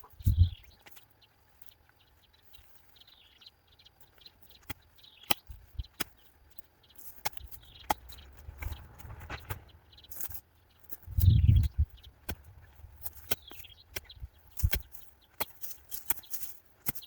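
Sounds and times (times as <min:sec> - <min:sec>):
birds chirping: 0:00.0 - 0:17.0
digging tool knocking soil: 0:07.0 - 0:17.0.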